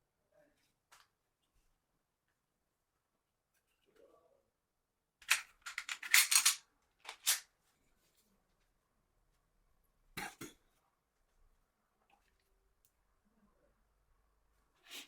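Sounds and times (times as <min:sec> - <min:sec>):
pistol parts clacking: 0:05.2 - 0:07.4.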